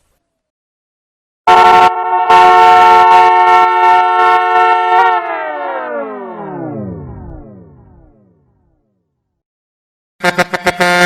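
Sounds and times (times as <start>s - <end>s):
air horn blasts: 1.5s - 5.6s, 10.2s - 11.0s.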